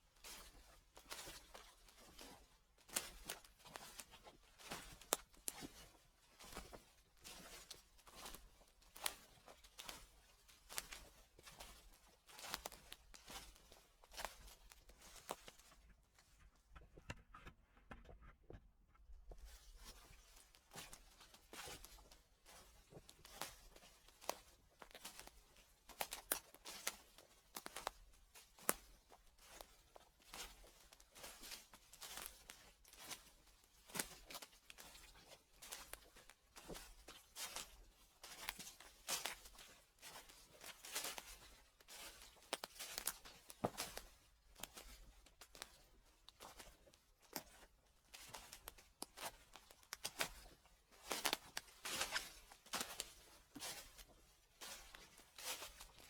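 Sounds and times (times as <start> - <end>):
footsteps on dry leaves: 50.4 - 56.0.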